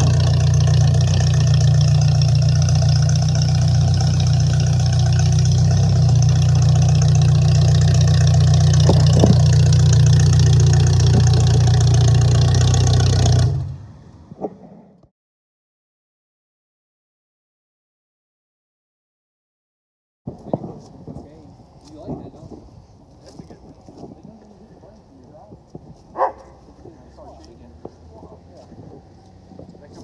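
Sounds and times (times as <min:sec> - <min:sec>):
car engine idling loudly: 0:00.0 - 0:13.8.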